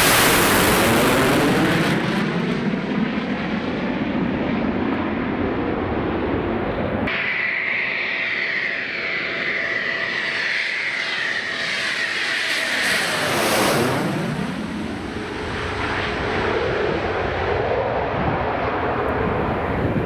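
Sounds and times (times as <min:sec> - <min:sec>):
jet fighter flying past: 0:00.0 - 0:20.0.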